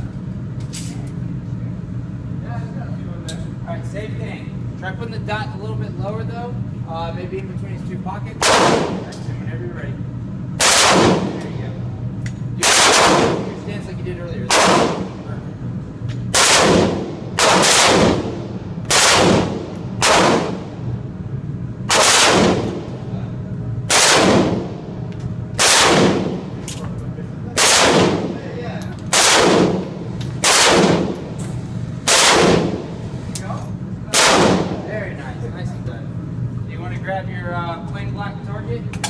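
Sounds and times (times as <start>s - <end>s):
gunshots with ringing tail: 8.4s - 9.1s, 10.6s - 11.4s, 12.6s - 13.6s, 14.5s - 15.2s, 16.4s - 20.8s, 21.9s - 22.9s, 23.9s - 24.8s, 25.6s - 26.5s, 27.6s - 28.4s, 29.1s - 31.4s, 32.0s - 33.0s, 34.1s - 34.9s.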